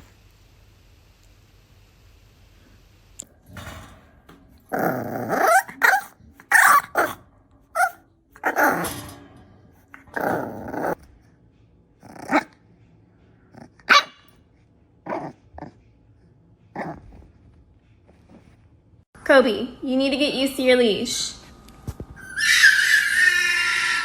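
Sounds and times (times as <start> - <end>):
dog growling and barking: 4.6 - 9.0, 9.9 - 11.1, 12.0 - 12.7, 13.4 - 14.3, 15.0 - 15.9, 16.7 - 17.4.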